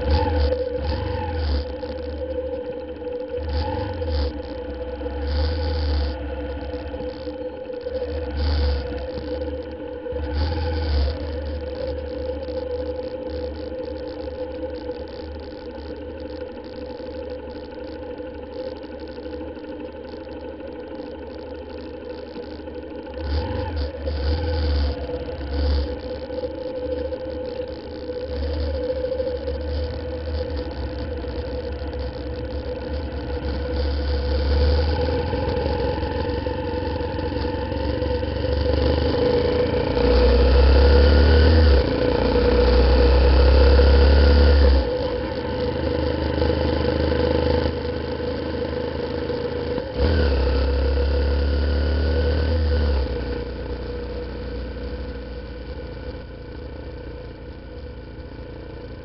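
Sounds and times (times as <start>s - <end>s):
motorcycle engine running: 0.0s - 17.9s, 18.6s - 59.0s.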